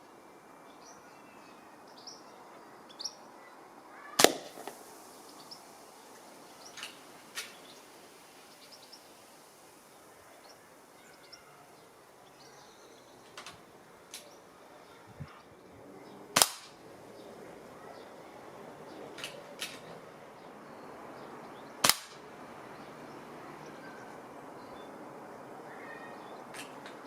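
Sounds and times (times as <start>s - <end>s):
air rifle shot: 4.2s - 4.9s, 16.4s - 16.8s, 21.8s - 22.2s.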